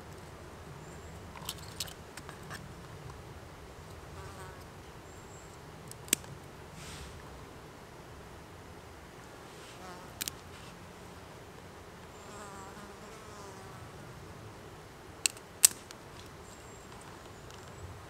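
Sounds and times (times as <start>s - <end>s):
insect buzzing: 12.1s - 14.1s.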